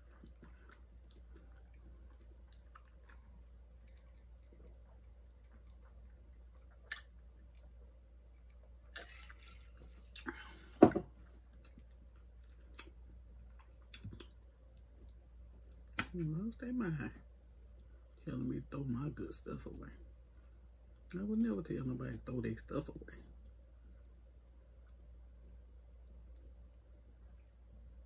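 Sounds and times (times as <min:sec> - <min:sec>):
person chewing: 0:00.0 - 0:16.0, 0:23.6 - 0:27.6.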